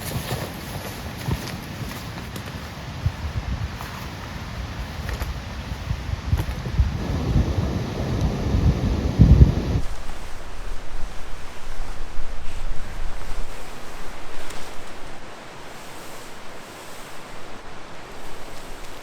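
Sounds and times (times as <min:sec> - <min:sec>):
rain: 0:00.0 - 0:19.0
wind buffeting microphone: 0:00.0 - 0:19.0
wind rushing: 0:03.0 - 0:15.3.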